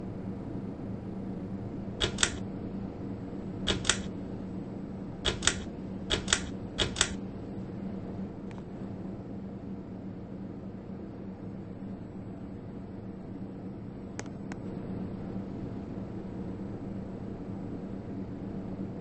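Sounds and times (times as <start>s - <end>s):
steady low hum: 0.0s - 19.0s
fan switch double clicks: 2.0s - 2.4s, 3.7s - 4.1s, 5.3s - 7.2s.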